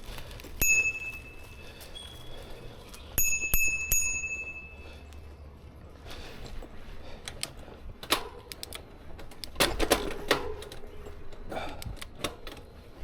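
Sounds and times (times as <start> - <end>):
bicycle parts clicking: 6.4 - 13.0.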